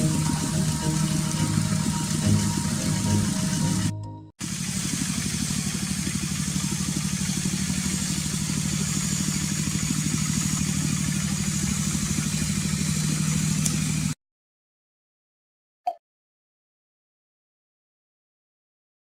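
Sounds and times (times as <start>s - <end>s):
engine running: 0.0s - 14.2s.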